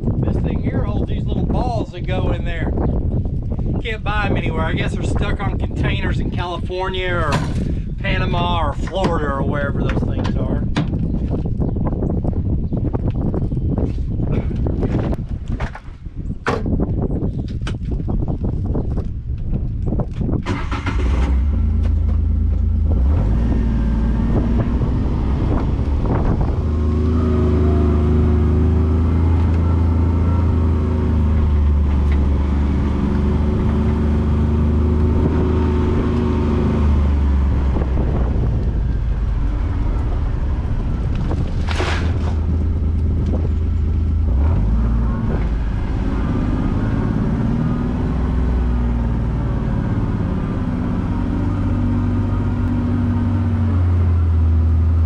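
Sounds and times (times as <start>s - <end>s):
vehicle engine rumbling: 0.0s - 55.0s.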